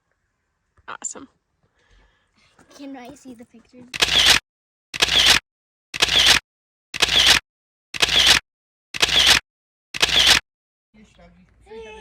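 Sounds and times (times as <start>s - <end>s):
camera shutter clicks: 4.0s - 4.4s, 5.0s - 5.4s, 6.0s - 6.4s, 7.0s - 7.4s, 8.0s - 8.4s, 9.0s - 9.4s, 10.0s - 10.4s.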